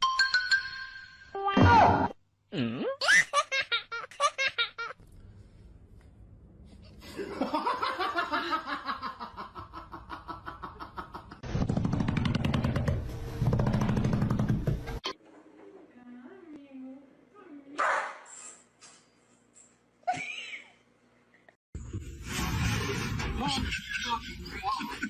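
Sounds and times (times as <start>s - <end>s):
laughter: 7.0s - 11.4s, 20.0s - 20.9s, 23.4s - 25.0s.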